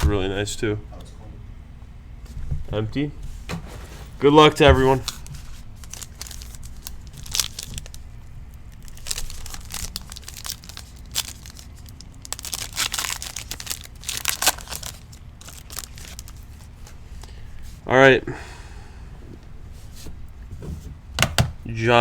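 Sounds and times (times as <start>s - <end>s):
card pack wrappers crinkling and ripping: 4.8s - 17.0s.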